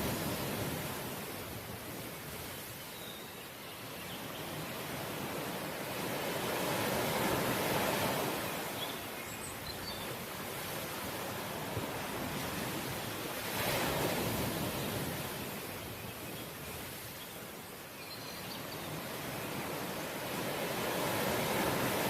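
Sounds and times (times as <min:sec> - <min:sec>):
sea waves washing on shore: 0:00.0 - 0:22.0.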